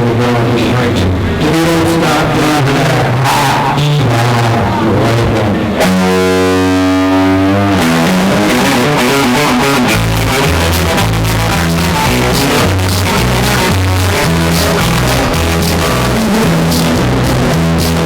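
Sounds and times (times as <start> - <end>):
walking bass line: 0.0 - 18.0
electric guitar chord: 5.6 - 18.0.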